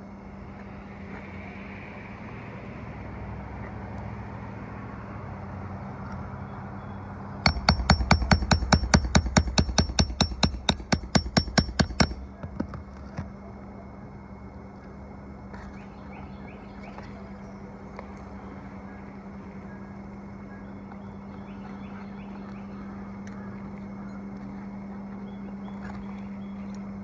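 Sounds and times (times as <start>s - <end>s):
steady low hum: 7.0s - 27.0s
hammer striking metal: 7.5s - 12.4s.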